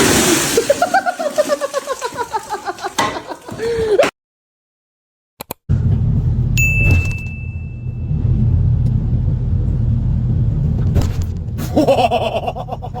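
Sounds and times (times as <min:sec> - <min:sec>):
loud low rumble: 0:05.7 - 0:11.8
high ringing tone: 0:06.6 - 0:08.4.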